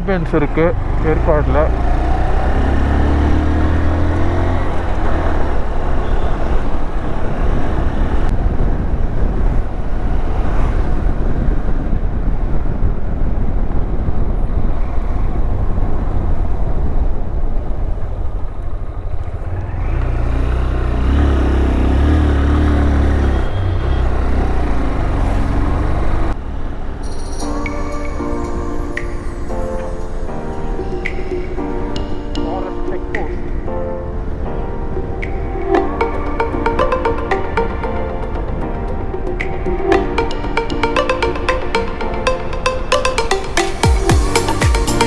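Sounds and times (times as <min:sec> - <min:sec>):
motorcycle engine: 0:00.0 - 0:06.0, 0:19.3 - 0:27.0.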